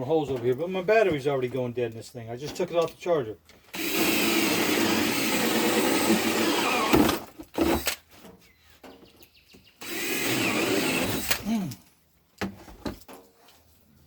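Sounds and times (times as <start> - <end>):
cordless drill boring: 3.7 - 8.0, 9.8 - 11.5.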